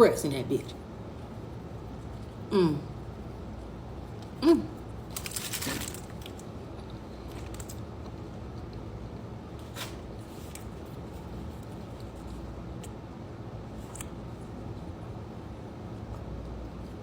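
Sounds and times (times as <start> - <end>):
crunching or crinkling: 4.1 - 8.8.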